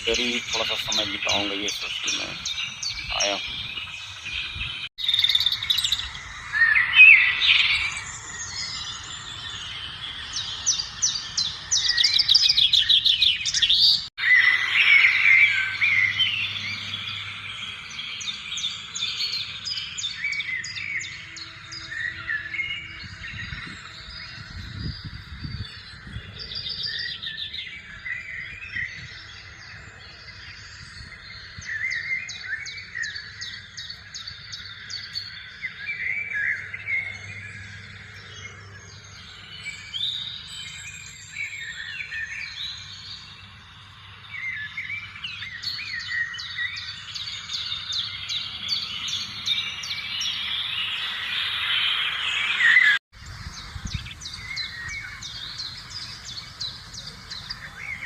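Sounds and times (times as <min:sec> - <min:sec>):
birds chirping and calling: 0:00.0 - 0:58.0.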